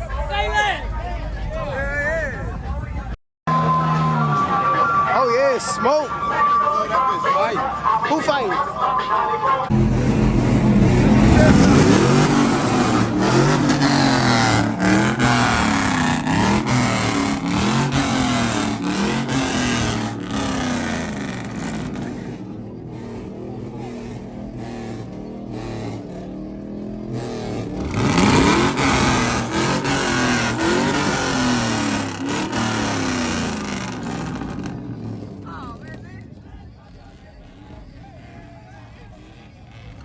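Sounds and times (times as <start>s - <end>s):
vehicle engine revving hard: 9.7s - 35.9s.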